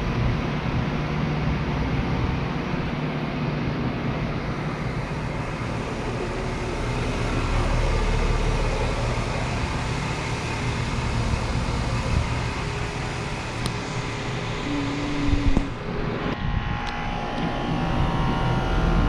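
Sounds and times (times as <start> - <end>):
air conditioner fan whoosh: 0.0 - 19.0
low compressor hum: 0.0 - 19.0.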